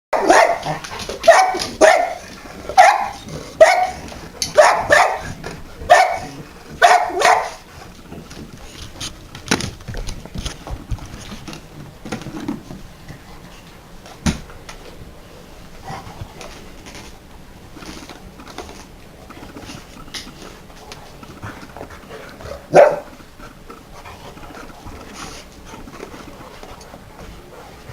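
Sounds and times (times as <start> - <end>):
dog barking: 0.1 - 7.6, 22.6 - 23.1.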